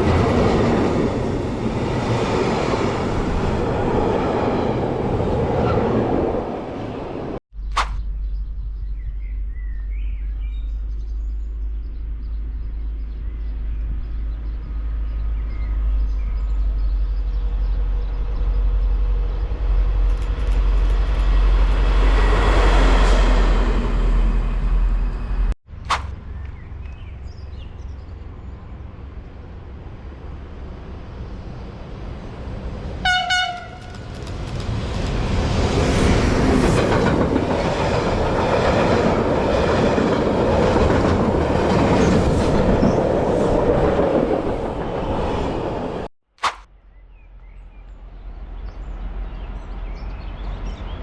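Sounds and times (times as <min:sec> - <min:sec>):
train rumbling past: 0:00.0 - 0:07.4, 0:13.0 - 0:25.6, 0:26.2 - 0:46.1
train horn blast: 0:33.0 - 0:34.0.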